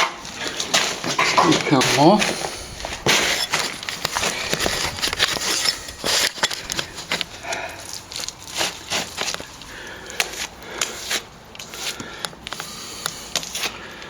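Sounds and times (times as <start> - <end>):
trowel scraping plaster: 0.5 - 9.6, 10.4 - 12.1.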